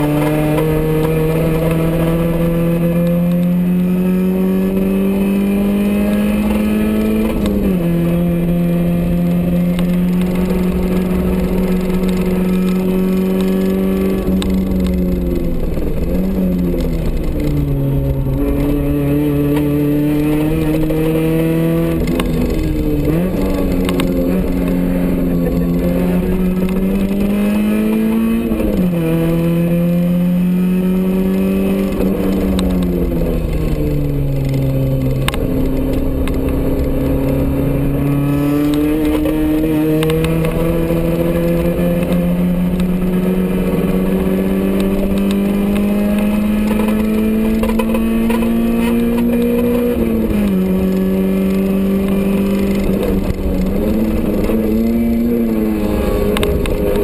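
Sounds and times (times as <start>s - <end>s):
car engine revving: 0.0s - 57.0s
road and wind noise: 0.0s - 57.0s.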